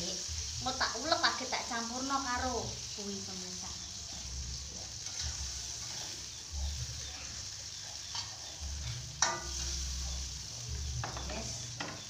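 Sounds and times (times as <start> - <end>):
food sizzling in oil: 0.0 - 12.0
metal spatula stirring: 3.9 - 12.0
spatula knocking a pan: 8.0 - 10.3, 10.9 - 12.0.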